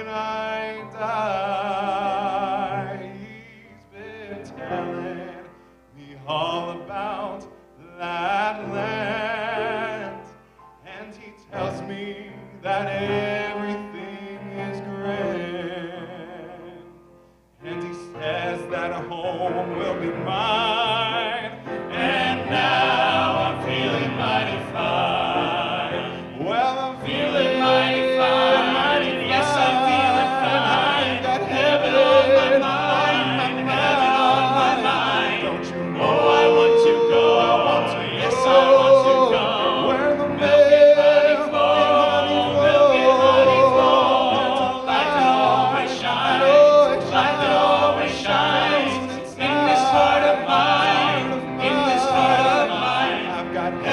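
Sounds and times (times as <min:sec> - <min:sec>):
instrumental accompaniment: 0:08.4 - 0:53.9
vocal group singing gospel: 0:17.6 - 0:53.9.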